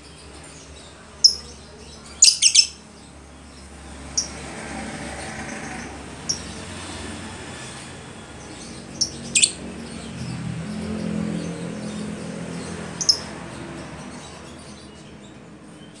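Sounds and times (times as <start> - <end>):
bird shrill chirps: 1.2 - 2.8, 9.0 - 9.6.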